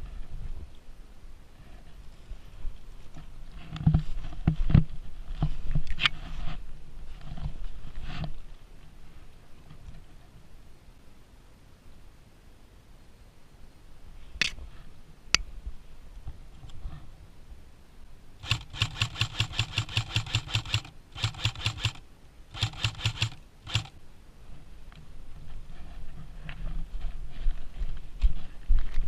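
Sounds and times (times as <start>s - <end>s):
airsoft gun full auto bursts: 18.4s - 24.0s.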